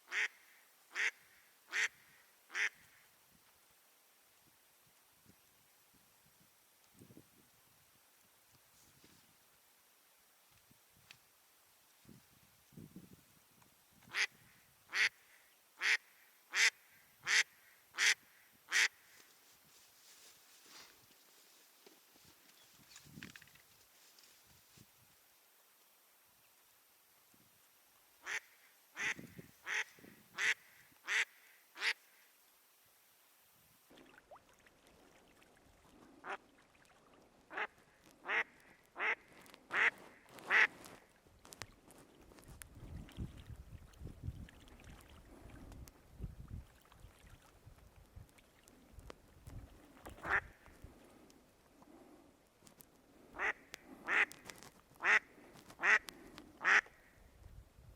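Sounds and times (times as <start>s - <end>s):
duck quacking: 0.1s - 2.8s, 14.1s - 14.3s, 14.9s - 15.2s, 15.8s - 19.0s, 28.2s - 32.0s, 37.5s - 40.7s, 53.4s - 54.3s, 55.0s - 57.1s.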